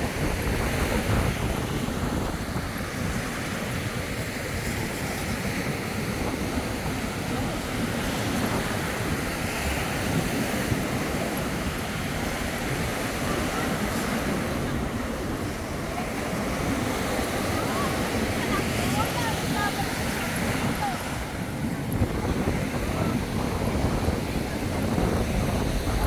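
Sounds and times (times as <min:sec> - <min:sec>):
surf washing onto sandy beach: 0:00.0 - 0:26.0
wind buffeting microphone: 0:00.0 - 0:26.0.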